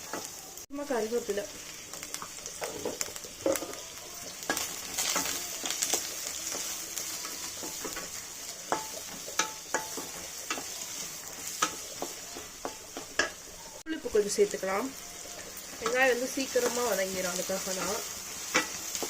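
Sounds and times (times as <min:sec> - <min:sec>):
onions sizzling in hot oil: 0:00.0 - 0:19.0
spatula scraping a pan: 0:02.2 - 0:13.5, 0:15.2 - 0:19.0.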